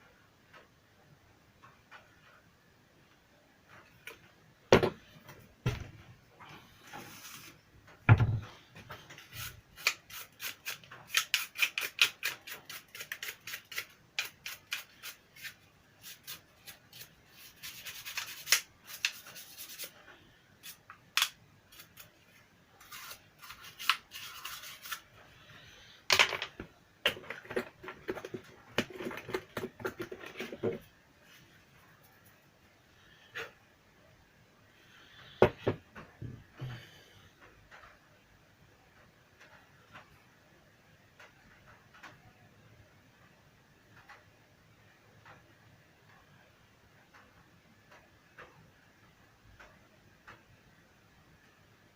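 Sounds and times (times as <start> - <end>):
small parts clicking and scraping: 8.8 - 30.9.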